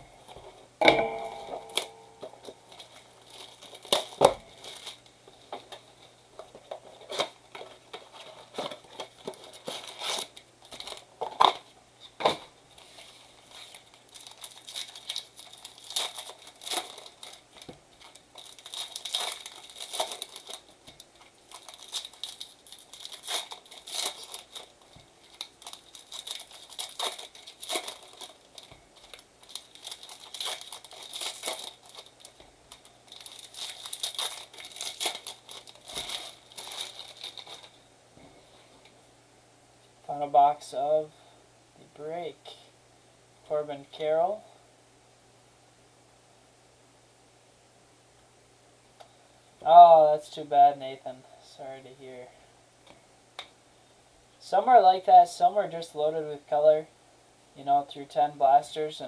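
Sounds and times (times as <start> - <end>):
wrappers tearing and crinkling: 1.3 - 11.7, 12.3 - 37.8.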